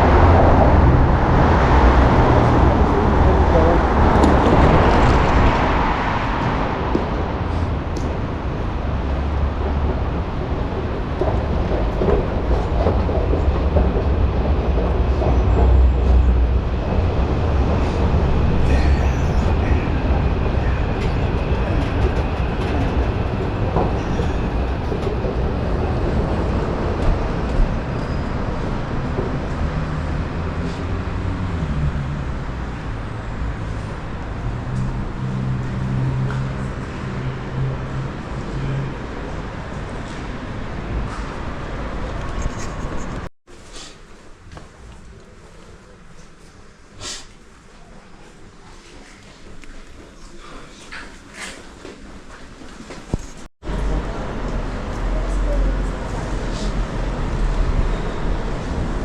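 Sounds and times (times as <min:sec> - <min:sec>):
train rumbling on rails: 0:00.0 - 0:43.9, 0:49.0 - 0:59.0.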